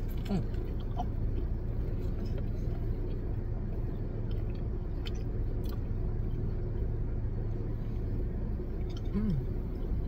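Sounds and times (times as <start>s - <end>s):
people chewing sandwich: 0.0s - 3.4s
car cabin hum: 0.0s - 10.0s.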